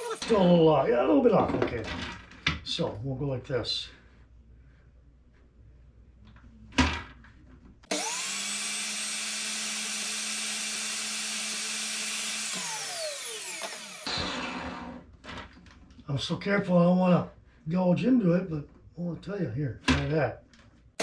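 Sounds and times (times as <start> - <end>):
electric saw running: 0.0 - 0.2, 7.9 - 15.0.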